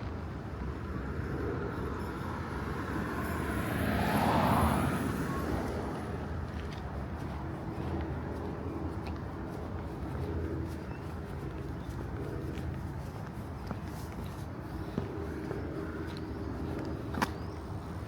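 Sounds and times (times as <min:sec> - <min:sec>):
traffic hum: 0:00.0 - 0:18.0
vehicle passing by: 0:02.7 - 0:08.4.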